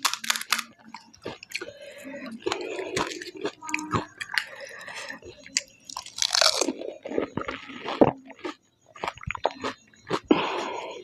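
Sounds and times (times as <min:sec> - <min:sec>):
crisp shells crunching: 0:00.0 - 0:01.7, 0:05.9 - 0:06.8.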